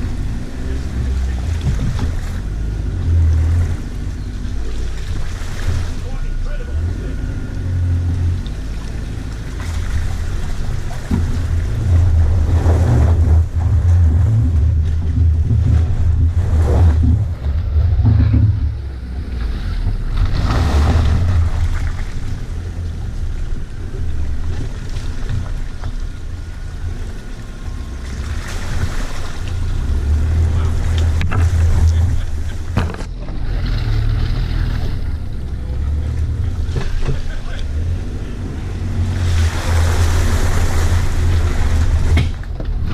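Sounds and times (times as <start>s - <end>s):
car engine rumbling: 0.0s - 42.9s
rushes of wind noise: 9.8s - 22.9s.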